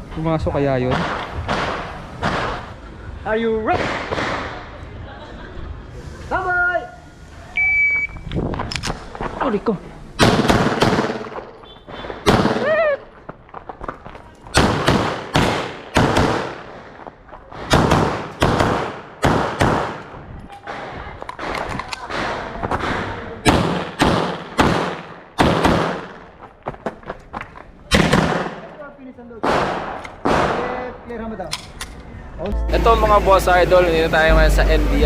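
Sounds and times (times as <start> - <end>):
pistol shots echoing: 10.2 - 11.5, 12.2 - 12.7, 14.6 - 16.8, 17.7 - 20.1, 23.4 - 26.2, 27.9 - 28.8, 29.4 - 30.8.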